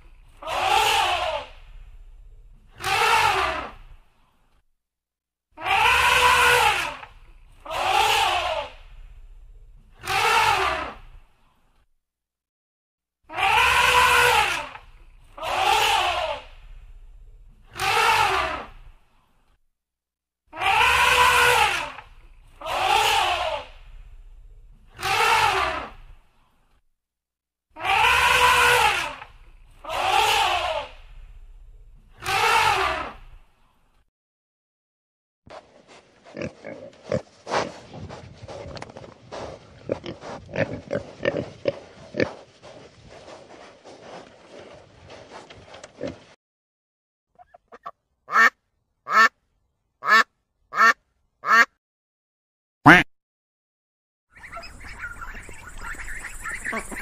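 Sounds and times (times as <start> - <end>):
boar snuffling: 35.5 - 46.4
wild boar grunting: 38.3 - 42.4.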